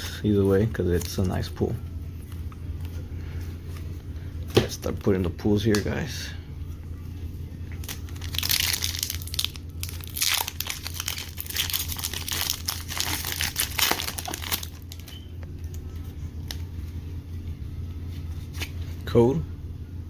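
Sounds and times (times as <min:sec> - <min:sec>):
foil wrapper crinkling and tearing: 0:07.8 - 0:15.8.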